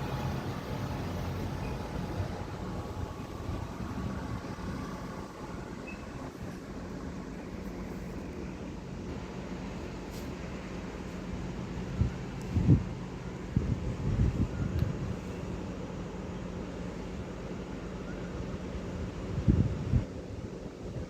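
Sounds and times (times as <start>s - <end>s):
distant vehicles rumbling: 0.0s - 7.9s.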